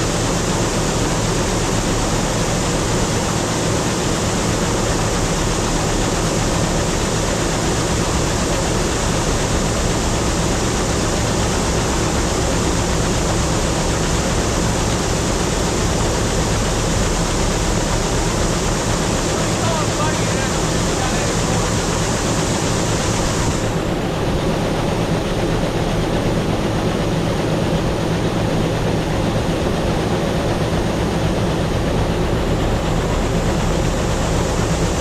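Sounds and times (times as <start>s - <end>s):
combine harvester engine drone: 0.0s - 35.0s
machinery rushing noise: 14.0s - 35.0s.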